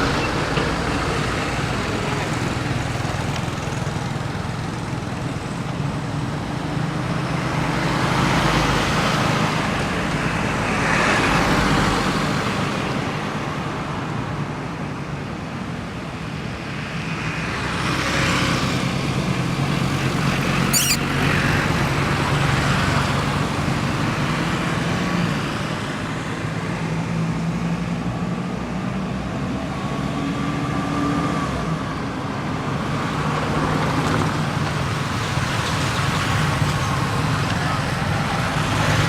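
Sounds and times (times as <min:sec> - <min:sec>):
vehicles passing: 0:15.9 - 0:39.0
brief high-pitched sound: 0:20.8 - 0:21.1.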